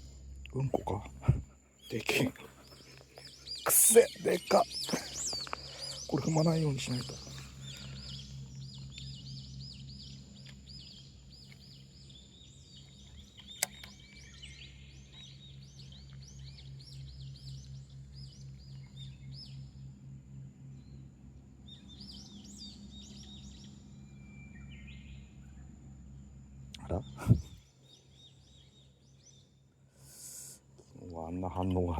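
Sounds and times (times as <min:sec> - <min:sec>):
songbirds singing: 0:00.0 - 0:31.9
steady low hum: 0:00.0 - 0:31.9
sharp click: 0:13.4 - 0:14.0.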